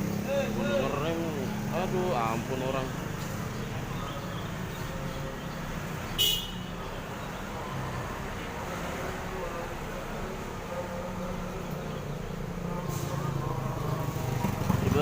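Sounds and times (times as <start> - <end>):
street traffic: 0.0 - 15.0
vehicle horn toot: 6.2 - 6.8.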